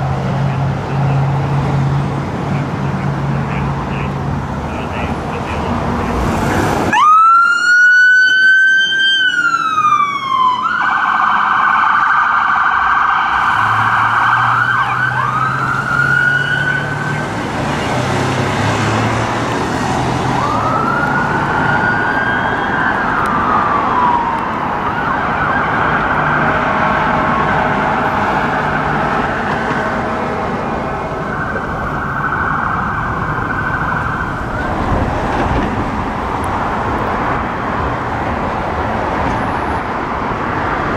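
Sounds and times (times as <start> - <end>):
emergency siren wailing: 4.8 - 38.8
siren yelp: 6.9 - 17.9, 20.2 - 27.8, 31.1 - 34.6.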